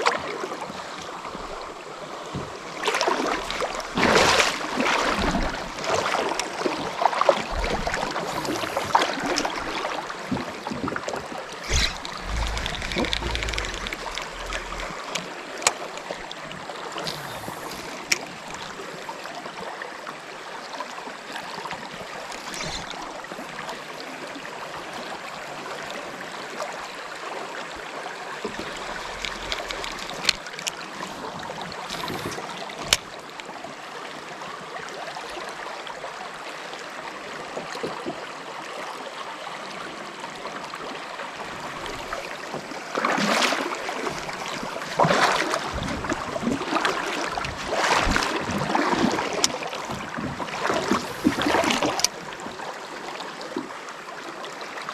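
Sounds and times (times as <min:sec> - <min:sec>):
water sloshing and splashing: 0:00.0 - 0:19.4, 0:21.1 - 0:24.2, 0:27.6 - 0:33.6, 0:41.5 - 0:52.8
creek water running: 0:00.0 - 0:54.9
sharp clicks: 0:11.6 - 0:15.8.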